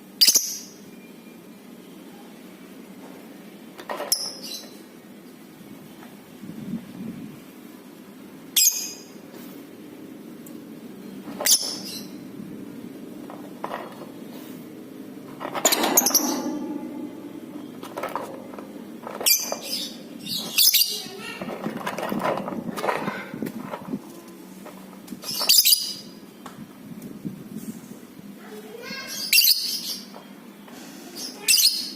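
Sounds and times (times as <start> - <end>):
steady low hum: 9.6 - 25.3
lovebirds chirping and squawking: 11.3 - 12.3, 19.0 - 21.9, 25.2 - 26.2, 29.0 - 31.9.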